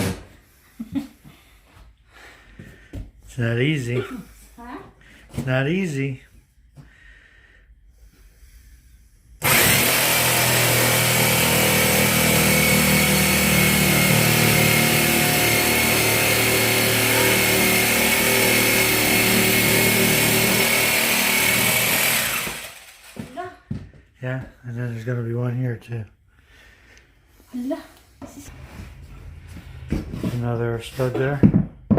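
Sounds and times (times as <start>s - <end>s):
electric power tool whining: 9.4s - 23.4s.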